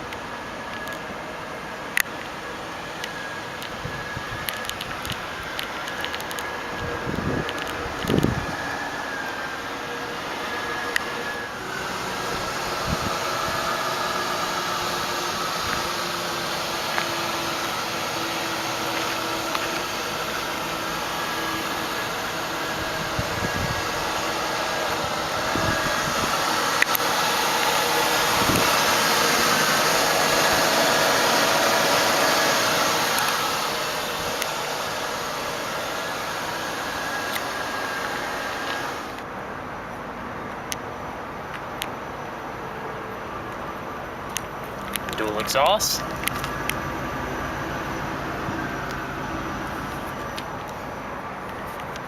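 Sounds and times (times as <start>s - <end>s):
steady hiss: 0.0s - 39.2s
car engine idling: 0.0s - 52.0s.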